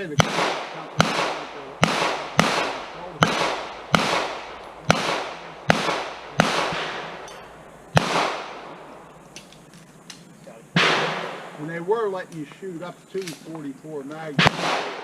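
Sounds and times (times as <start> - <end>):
pistol shots with echo: 0.0 - 9.0, 10.8 - 11.6, 14.3 - 15.0.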